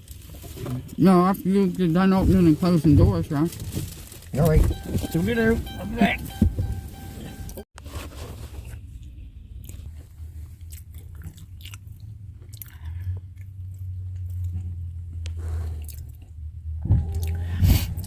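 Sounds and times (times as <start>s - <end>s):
car engine idling: 4.4s - 7.6s
chewing crunchy food: 10.4s - 16.4s.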